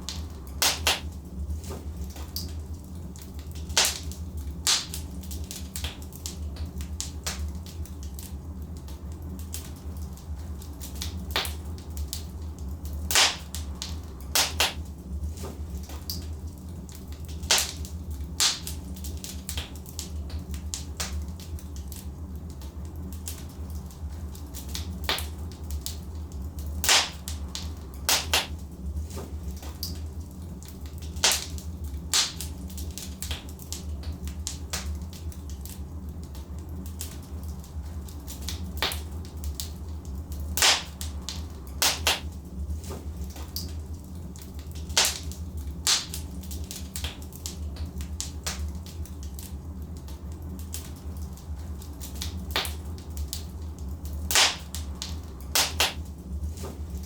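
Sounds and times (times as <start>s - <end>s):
fire crackling and popping: 0.0s - 57.0s
low rumble of fire: 0.0s - 57.0s.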